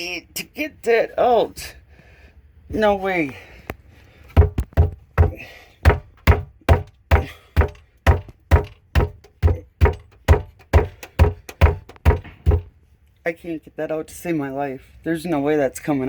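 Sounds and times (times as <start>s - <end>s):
dull knocks on wooden shelf: 4.4s - 12.7s.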